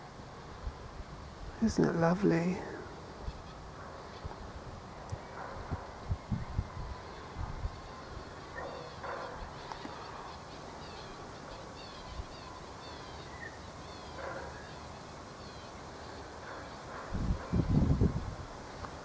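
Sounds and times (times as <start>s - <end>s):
bird chirping: 5.1s - 18.0s.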